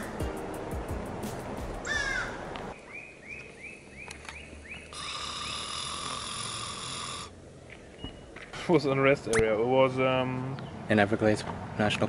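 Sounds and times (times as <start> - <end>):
bird calls: 0.0 - 0.3, 1.8 - 8.4
music: 0.0 - 2.7.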